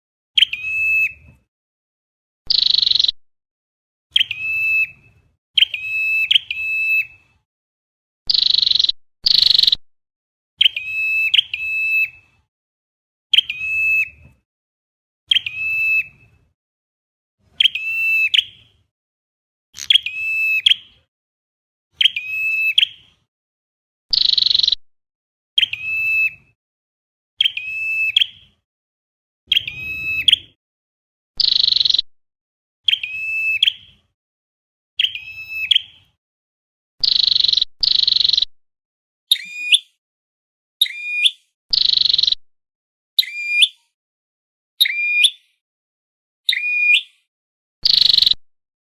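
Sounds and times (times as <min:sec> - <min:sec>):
bird ringing chirps: 0:02.5 - 0:03.2, 0:08.3 - 0:09.8, 0:24.1 - 0:24.8, 0:29.5 - 0:30.6, 0:31.4 - 0:32.1
buzzy bird calls: 0:29.5 - 0:30.6.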